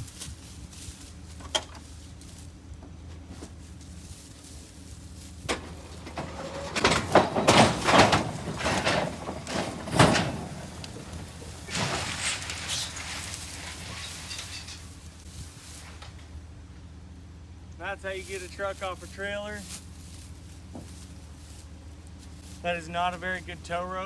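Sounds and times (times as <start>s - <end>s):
truck clanking down ramps: 5.2s - 16.4s.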